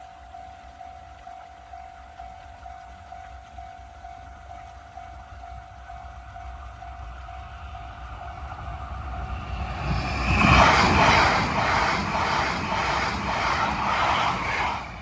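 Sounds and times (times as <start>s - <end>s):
train wheels clattering: 7.5s - 15.0s.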